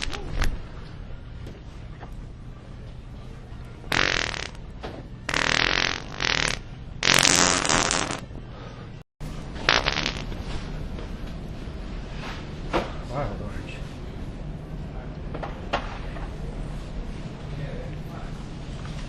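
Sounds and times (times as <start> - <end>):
fart sound effects: 0.0 - 0.6, 3.9 - 8.3, 9.6 - 10.4.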